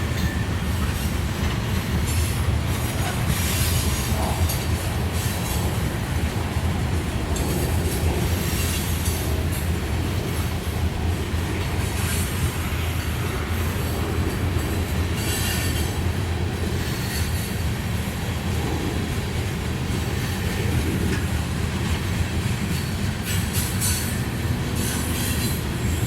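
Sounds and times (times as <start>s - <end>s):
train wheel screech: 0.0s - 5.8s, 7.4s - 9.7s, 11.8s - 17.8s, 22.6s - 26.0s
freight train rumbling: 0.0s - 26.0s.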